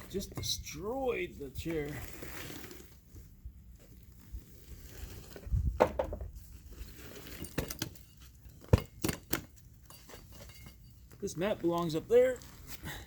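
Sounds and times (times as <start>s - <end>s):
sharp knocks and clatters: 5.8s - 6.3s.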